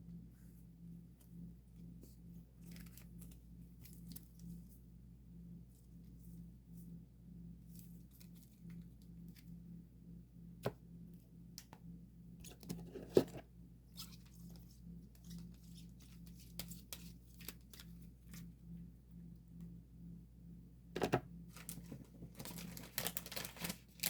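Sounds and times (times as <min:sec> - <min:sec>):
cards rustling and crinkling: 0:02.6 - 0:04.6, 0:12.5 - 0:18.5, 0:21.1 - 0:24.0.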